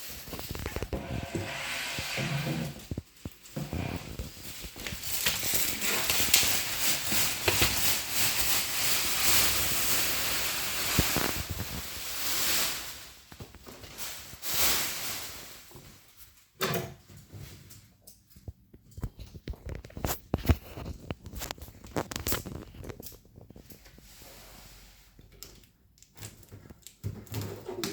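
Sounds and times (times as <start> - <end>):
packaging rustling and scraping: 0.0 - 16.5, 18.9 - 25.3.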